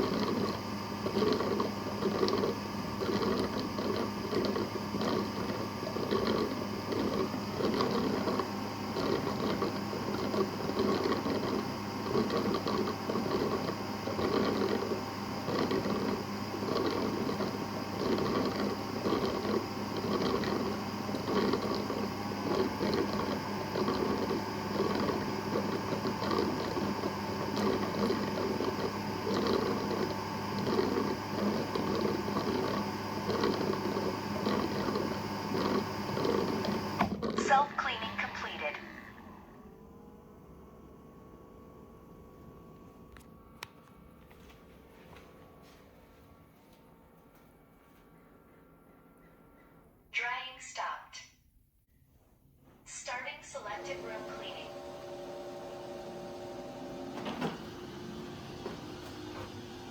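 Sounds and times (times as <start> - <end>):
brushes churning: 0.0 - 37.4
robot vacuum motor whine: 0.0 - 43.6, 52.9 - 59.9.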